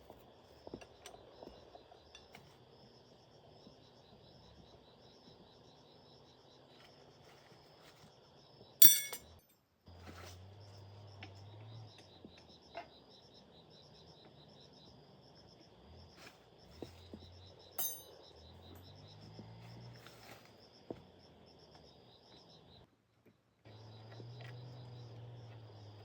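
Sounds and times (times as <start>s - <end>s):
insects trilling: 0.0s - 9.0s, 9.9s - 22.9s, 23.6s - 26.0s
sharp metallic clink: 8.8s - 9.6s, 17.8s - 18.2s.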